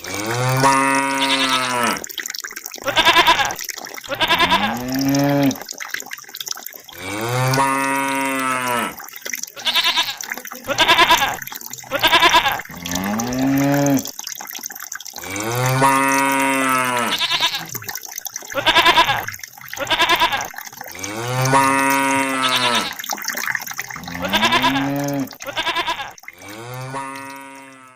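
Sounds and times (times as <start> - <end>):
bleat-like animal calls: 1.1 - 2.0, 2.9 - 4.8, 9.6 - 12.6, 17.0 - 17.8, 18.6 - 20.5, 22.4 - 23.0, 24.0 - 26.2
moo-like animal calls: 21.5 - 23.0, 24.0 - 26.2.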